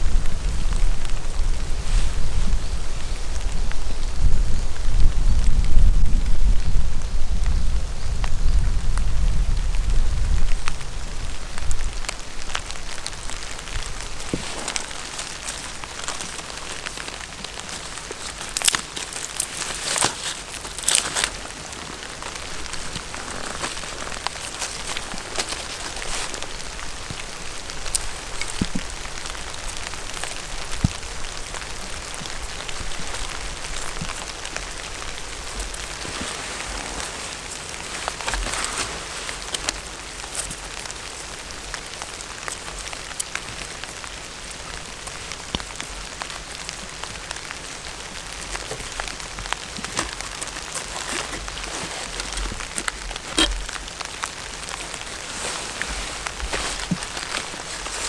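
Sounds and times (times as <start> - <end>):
rain pattering: 3.2 - 58.0
sharp taps and rustles: 13.0 - 58.0.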